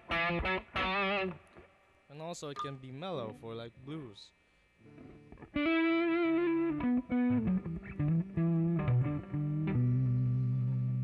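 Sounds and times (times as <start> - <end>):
electric guitar blues lick: 0.0 - 1.6, 4.8 - 11.0.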